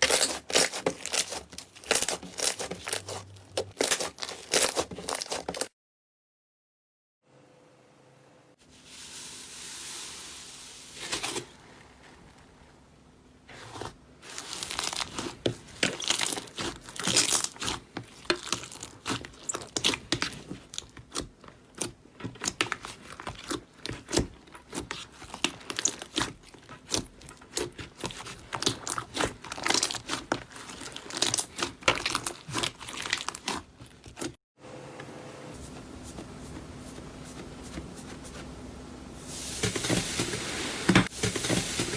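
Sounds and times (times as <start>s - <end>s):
quiet steady hum: 7.4s - 33.2s.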